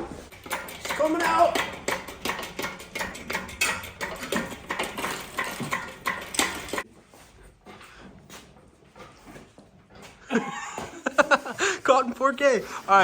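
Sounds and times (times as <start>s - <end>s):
engine hoist chain clicking: 0.3s - 6.8s.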